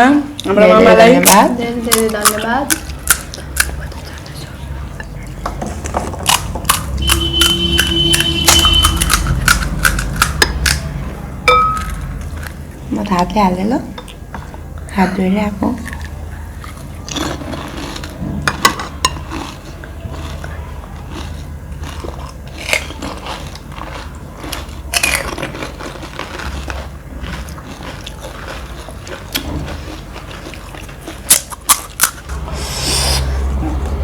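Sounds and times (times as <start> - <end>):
crisp shells crunching when chewed: 1.2 - 4.5, 6.1 - 10.9, 15.8 - 32.4.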